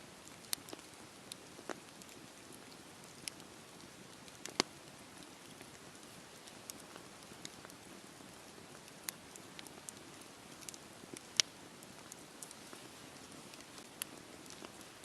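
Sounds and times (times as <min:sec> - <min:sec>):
campfire crackling and popping: 0:00.1 - 0:15.0.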